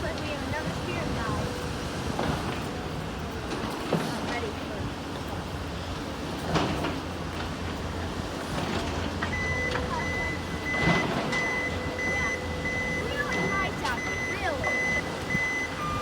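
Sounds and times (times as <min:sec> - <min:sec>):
engine rumble: 0:00.0 - 0:16.0
reversing alarm beeping: 0:09.2 - 0:16.0.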